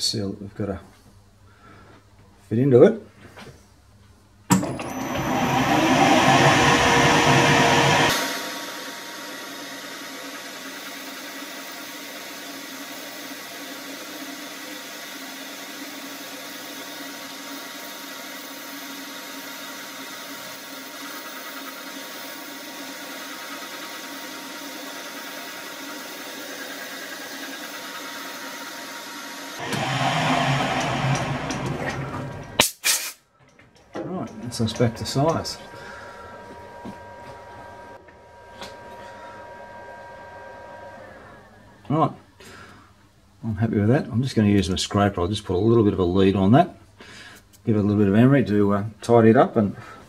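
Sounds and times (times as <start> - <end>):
metal lathe cutting: 4.5 - 32.6, 34.0 - 41.5.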